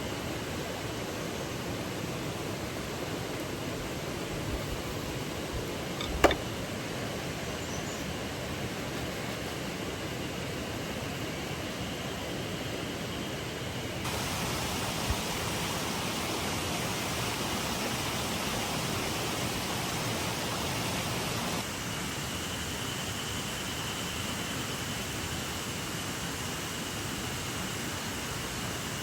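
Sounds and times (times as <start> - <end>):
river rushing: 14.0 - 21.8.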